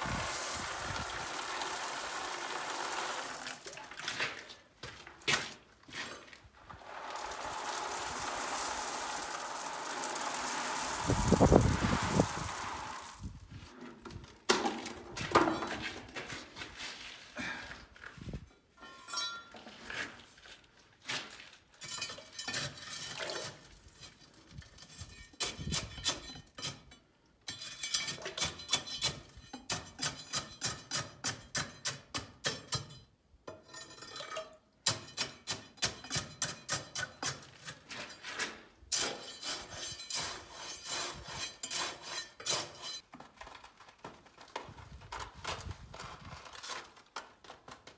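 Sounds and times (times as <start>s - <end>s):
metal tools striking stone: 18.8s - 19.5s, 27.5s - 33.1s, 34.9s - 37.4s.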